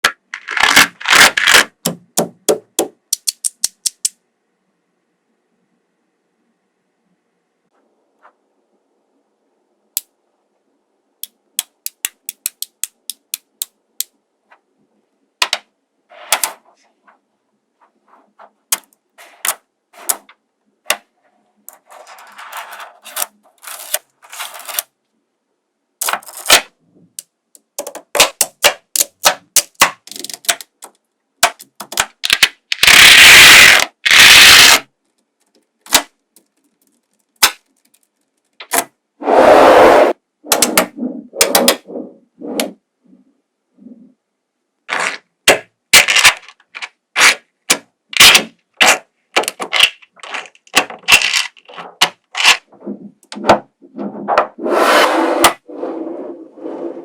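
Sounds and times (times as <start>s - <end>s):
magnetic balls clicking together: 1.4s - 4.2s, 11.2s - 14.2s, 27.2s - 38.8s
balls rattling and rolling: 17.9s - 25.0s, 35.0s - 39.0s, 44.9s - 54.6s.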